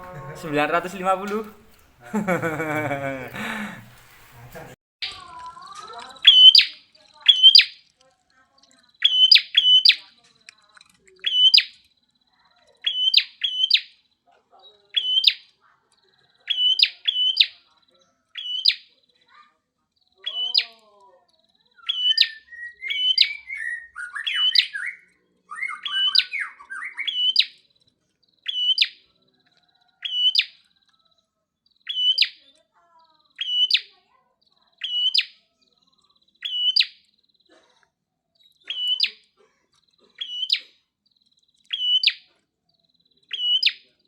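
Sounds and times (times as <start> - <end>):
bird chirping: 5.0 - 7.9, 8.7 - 10.1, 10.7 - 19.3, 20.0 - 20.8, 21.4 - 30.7, 31.6 - 37.6, 38.3 - 39.3, 39.9 - 44.0
songbirds twittering: 5.0 - 7.9, 8.5 - 19.4, 20.0 - 37.6, 38.3 - 39.3, 39.9 - 44.0.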